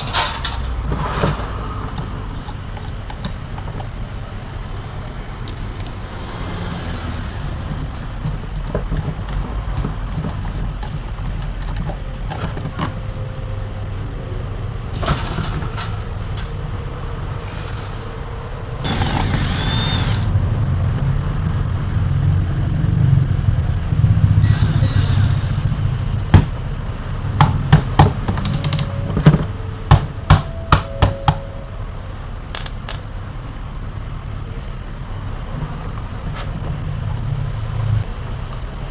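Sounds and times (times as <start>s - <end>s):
sharp clicks and knocks: 0.0s - 4.0s
low rumble of traffic: 0.0s - 38.9s.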